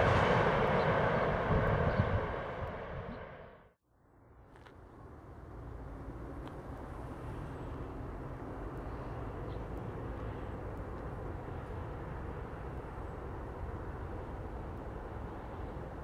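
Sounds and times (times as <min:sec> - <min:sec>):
distant freight train rumble: 0:00.0 - 0:03.8.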